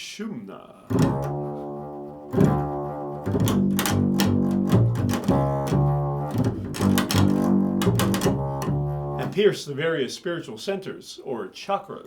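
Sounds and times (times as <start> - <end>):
plucked string instrument: 2.3 - 9.4.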